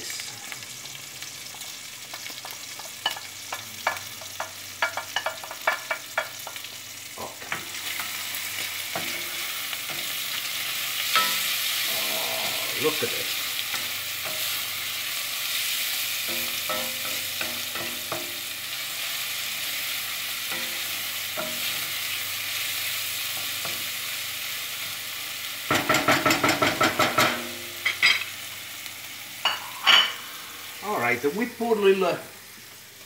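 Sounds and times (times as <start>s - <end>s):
onion and garlic sizzling in oil: 0.0s - 33.0s
spoon knocking against pan: 3.0s - 6.6s, 25.7s - 28.1s.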